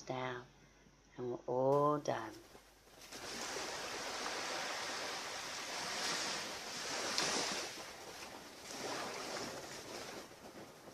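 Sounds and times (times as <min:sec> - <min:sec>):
ocean surf washing onto beach: 0:03.0 - 0:10.9.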